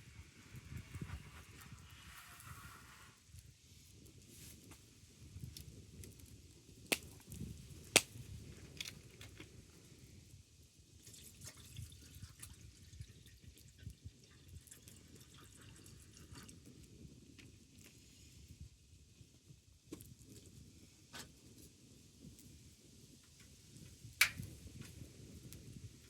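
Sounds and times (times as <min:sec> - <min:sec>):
sharp pops from fire: 0:04.6 - 0:09.5, 0:24.1 - 0:25.7
wood fire crackling: 0:05.4 - 0:09.8, 0:24.1 - 0:26.0.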